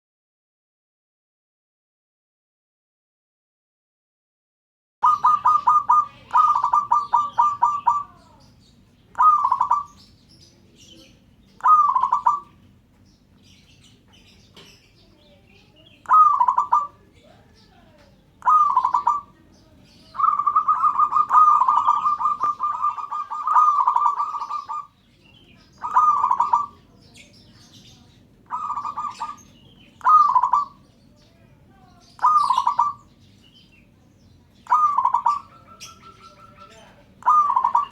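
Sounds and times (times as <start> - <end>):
dove cooing: 5.0 - 8.5, 9.1 - 10.1, 10.8 - 12.7, 16.0 - 30.9, 32.1 - 33.2, 34.6 - 37.9.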